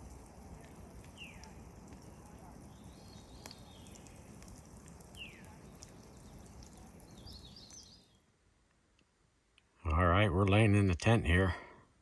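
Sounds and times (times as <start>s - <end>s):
low outdoor background noise: 0.0s - 12.0s
bird chirps: 0.6s - 8.3s.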